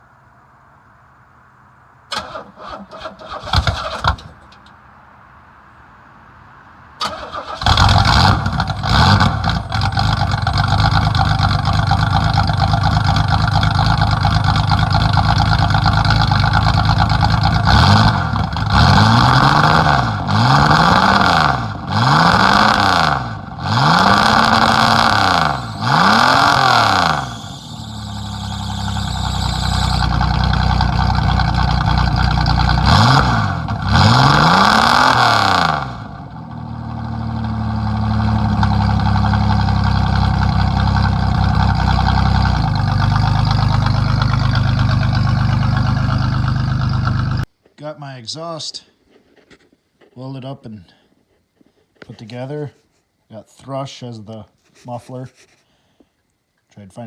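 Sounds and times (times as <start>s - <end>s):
car engine cranking and idling: 2.1s - 5.3s, 6.9s - 47.5s
engine revving: 7.0s - 47.5s.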